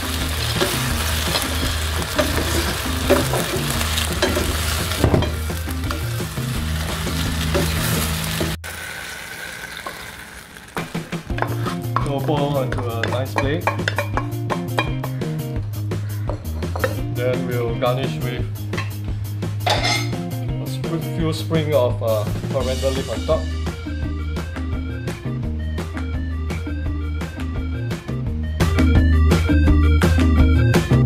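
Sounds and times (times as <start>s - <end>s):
sauce sizzling in a frying pan: 0.0s - 14.3s
spatula knocking and scraping pan: 0.4s - 6.1s, 10.8s - 15.3s, 16.2s - 17.0s
wooden spatula stirring: 11.4s - 14.1s.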